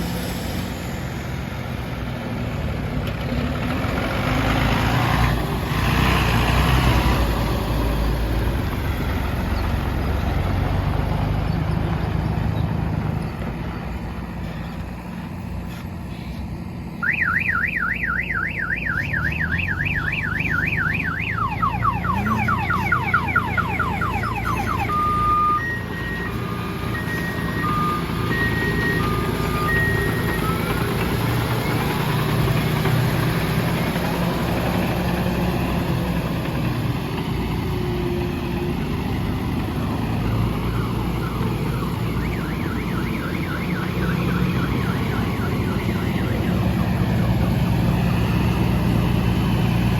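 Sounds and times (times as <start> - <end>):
heavy vehicle engine running: 0.0 - 49.9
electronic siren alarm: 17.0 - 30.7, 40.1 - 47.8.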